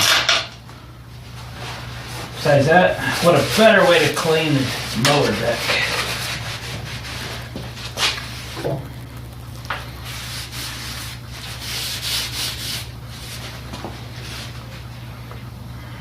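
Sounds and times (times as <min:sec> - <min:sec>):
steady low hum: 0:00.0 - 0:16.0
hands rubbing and scraping: 0:03.0 - 0:08.6.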